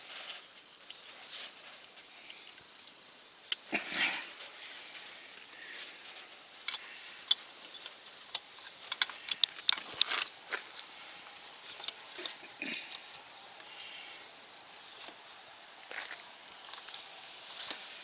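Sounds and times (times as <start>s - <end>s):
hand tools clinking on metal: 5.0s - 14.0s, 15.8s - 18.0s.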